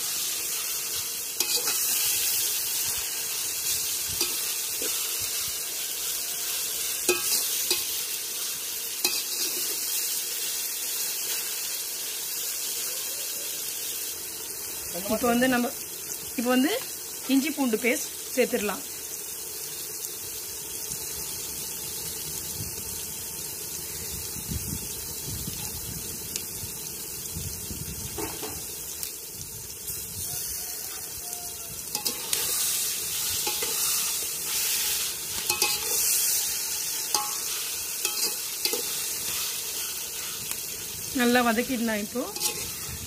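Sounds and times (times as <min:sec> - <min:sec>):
onions sizzling in oil: 0:00.0 - 0:43.0
metal ladle scraping pot: 0:01.4 - 0:02.0, 0:31.9 - 0:40.6, 0:42.3 - 0:43.0.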